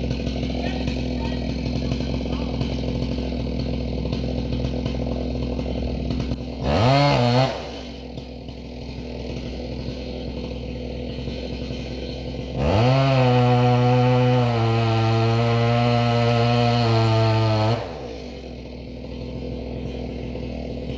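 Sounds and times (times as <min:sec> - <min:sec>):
chainsaw revving: 0:00.0 - 0:20.9.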